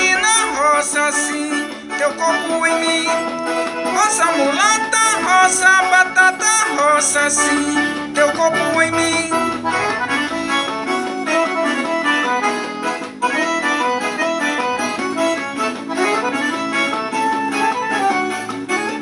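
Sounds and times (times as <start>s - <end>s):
accordion melody: 0.0s - 19.0s
percussion beat: 6.7s - 12.0s.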